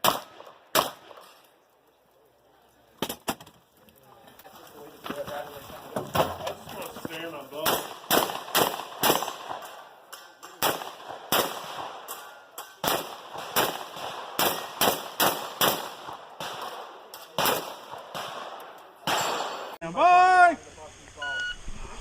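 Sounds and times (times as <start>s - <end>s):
gunshots: 0.0s - 1.3s, 7.6s - 9.9s, 10.6s - 12.2s, 12.8s - 19.8s.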